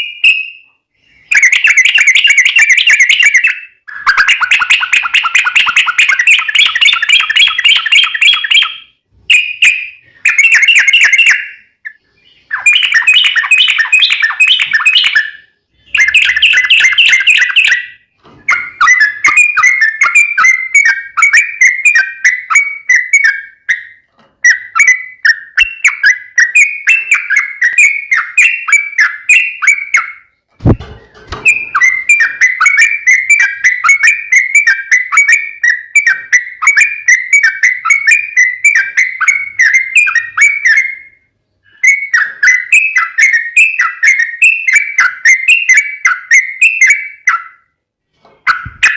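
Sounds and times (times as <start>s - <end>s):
bird singing bubbling song: 0.0s - 30.8s, 31.4s - 47.6s.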